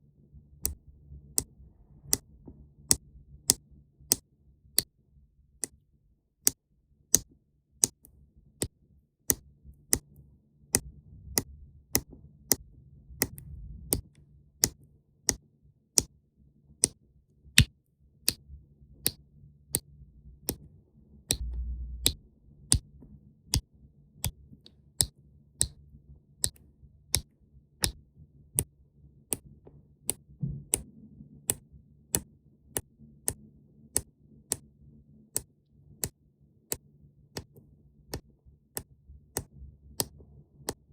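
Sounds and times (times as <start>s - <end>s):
faint low hum: 0.0s - 7.1s, 9.6s - 17.5s, 18.4s - 24.7s
evenly spaced sharp clicks: 2.9s - 4.2s, 6.4s - 10.2s, 13.2s - 15.4s, 17.6s - 18.4s, 19.0s - 20.7s, 25.0s - 25.8s, 26.4s - 28.0s, 31.5s - 34.6s, 35.3s - 40.9s.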